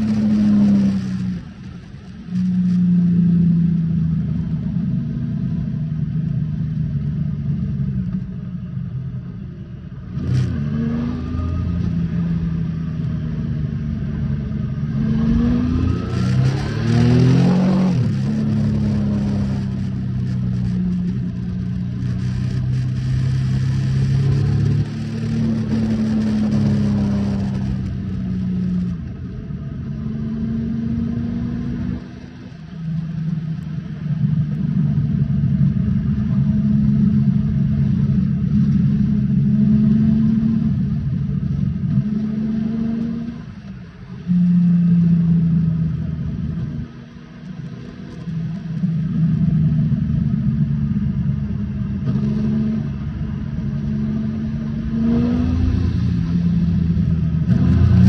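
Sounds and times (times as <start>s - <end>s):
wind and road noise: 0.0s - 58.0s
motorcycle engine accelerating: 10.2s - 44.5s.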